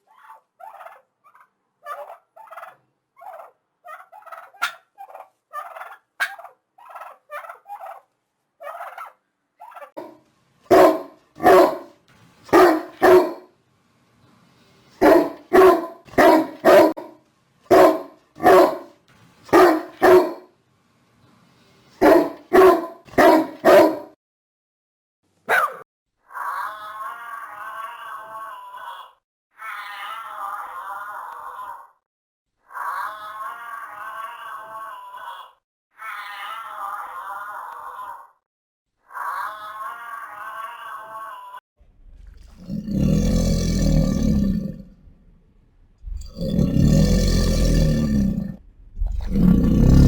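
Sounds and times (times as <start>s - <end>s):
dog barking loudly: 4.6s - 4.8s, 6.2s - 6.5s, 10.0s - 13.5s, 15.0s - 17.1s, 17.7s - 18.9s, 19.5s - 20.5s, 22.0s - 24.2s, 25.5s - 25.8s.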